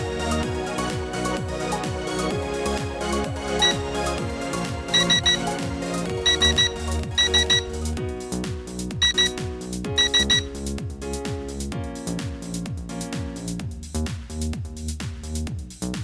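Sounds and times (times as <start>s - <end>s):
electronic dance music: 0.0s - 13.5s
short high beeps: 4.9s - 5.4s, 6.2s - 7.6s, 9.0s - 9.3s, 10.0s - 10.5s.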